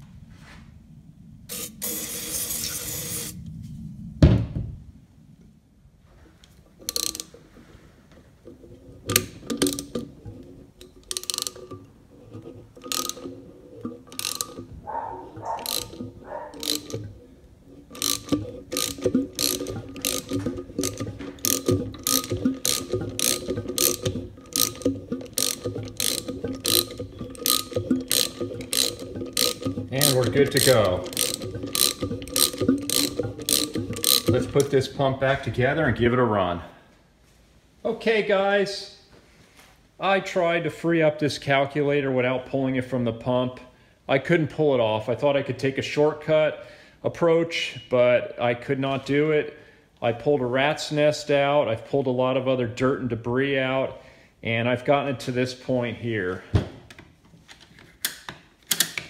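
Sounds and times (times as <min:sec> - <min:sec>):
socket wrench ratchet clicking: 0:06.8 - 0:07.4, 0:09.1 - 0:10.1, 0:10.8 - 0:14.7, 0:15.3 - 0:17.2, 0:17.8 - 0:34.7, 0:58.0 - 0:59.0.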